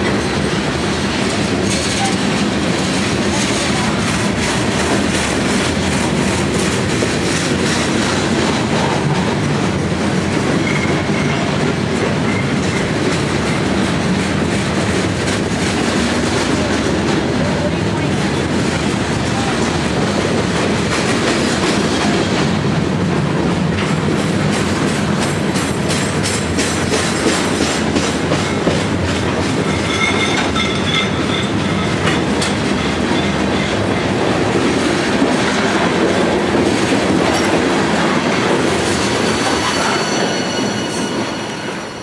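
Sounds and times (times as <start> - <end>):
faint high wheel squeal: 39.2 - 42.0.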